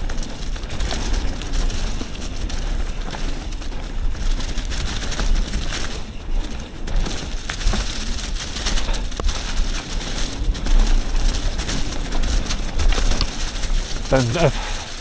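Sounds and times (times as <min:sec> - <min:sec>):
bike clicks and rattles: 0:00.0 - 0:15.0
bike tyre noise: 0:00.0 - 0:15.0.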